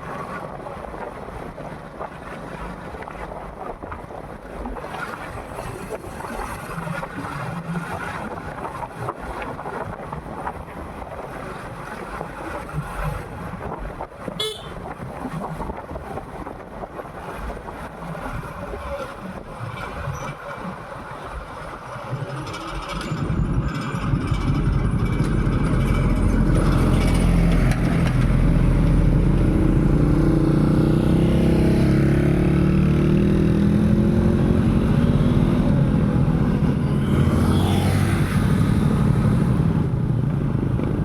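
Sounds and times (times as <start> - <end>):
wind and road noise: 0.0 - 41.0
motorcycle engine: 22.5 - 41.0.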